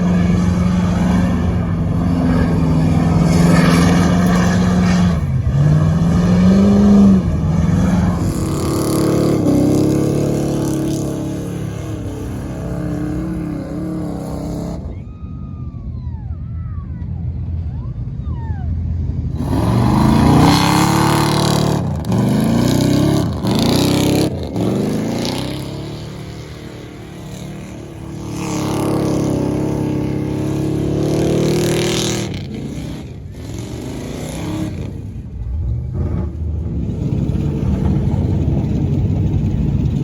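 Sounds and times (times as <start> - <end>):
car engine revving: 0.0 - 15.0, 19.0 - 40.0.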